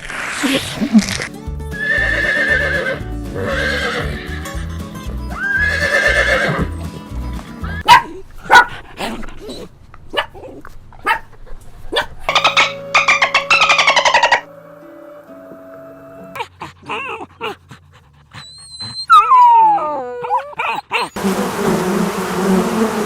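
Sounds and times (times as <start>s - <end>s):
background music: 1.2s - 7.8s, 12.3s - 16.4s
animal calling wavering: 12.3s - 15.3s.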